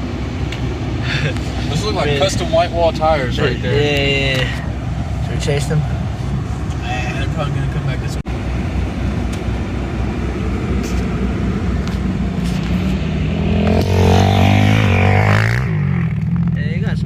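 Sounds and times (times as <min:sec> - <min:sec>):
engine running: 0:00.0 - 0:17.0
dirt bike engine revving: 0:12.8 - 0:16.5.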